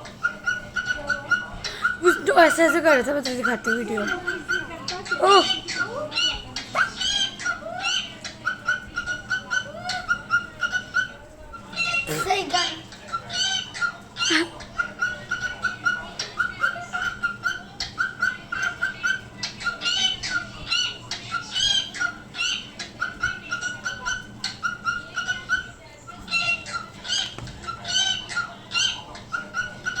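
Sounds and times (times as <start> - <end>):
parrot chirping: 0.0 - 30.0.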